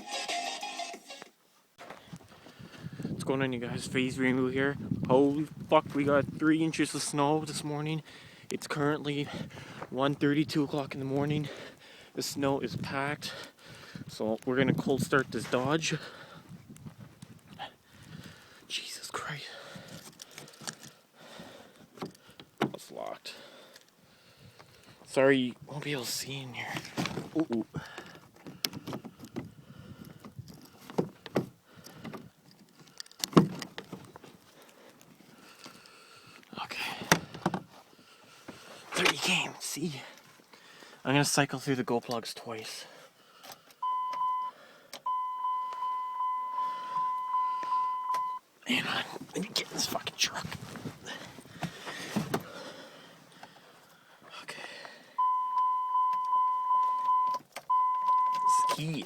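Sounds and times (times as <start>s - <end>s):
dashboard warning chime dinging: 43.8s - 48.5s, 55.2s - 59.0s.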